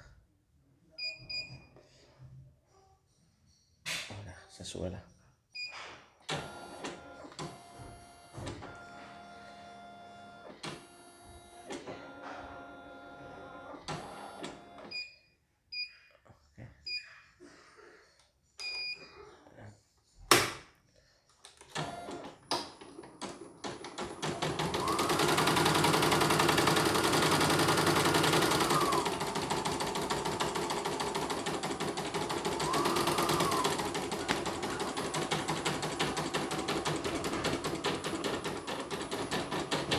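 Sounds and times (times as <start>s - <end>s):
needle stitching rhythmically: 23.2s - 39.9s.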